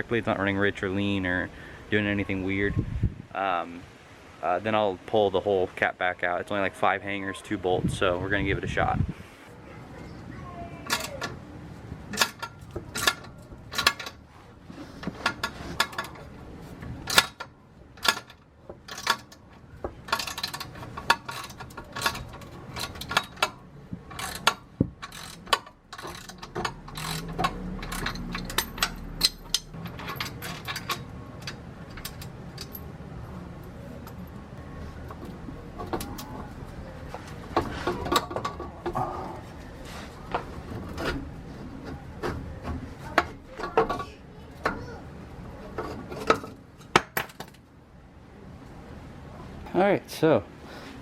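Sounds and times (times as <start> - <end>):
metal clicks and clanks: 10.8 - 11.4, 12.1 - 14.2, 15.0 - 32.9, 37.2 - 39.4
socket wrench ratcheting: 20.1 - 32.8.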